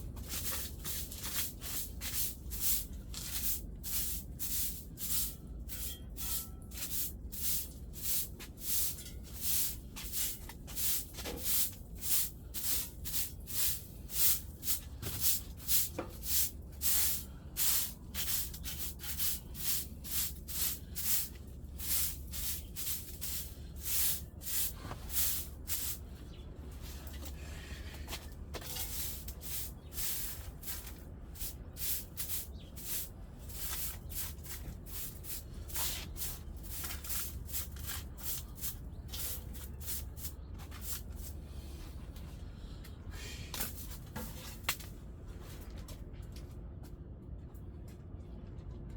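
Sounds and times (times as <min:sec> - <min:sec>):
brush scrubbing a stove: 0:00.1 - 0:26.0, 0:28.7 - 0:41.3.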